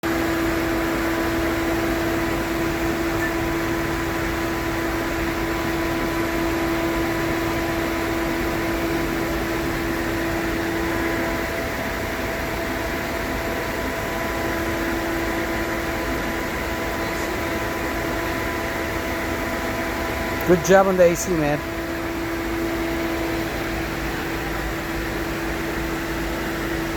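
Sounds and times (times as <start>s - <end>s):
air-conditioning blower rushing: 0.0s - 26.9s
steady hum tone: 0.2s - 26.9s.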